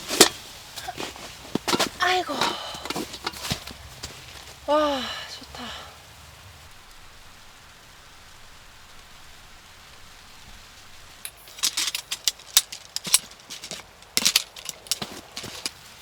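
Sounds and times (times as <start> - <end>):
faint steady hiss: 0.0 - 16.0
small hard objects clicking: 11.2 - 15.8.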